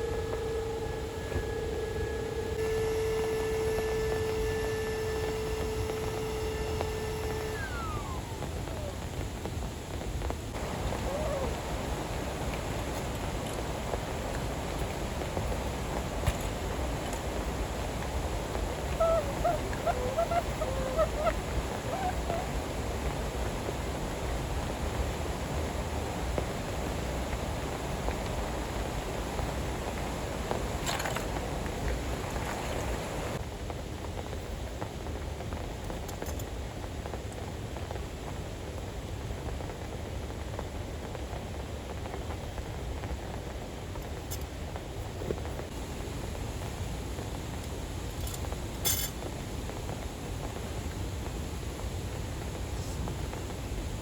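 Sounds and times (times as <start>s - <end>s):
short pitched animal calls: 0.0s - 9.1s, 10.6s - 13.4s, 18.6s - 23.1s
heavy rain on tent: 0.0s - 54.0s.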